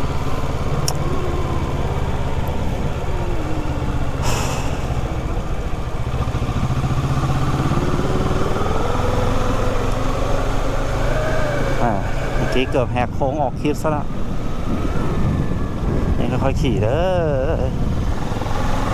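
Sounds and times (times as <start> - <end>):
motorcycle engine revving: 0.0 - 13.1, 17.7 - 18.9
brief rush of noise: 4.2 - 5.3.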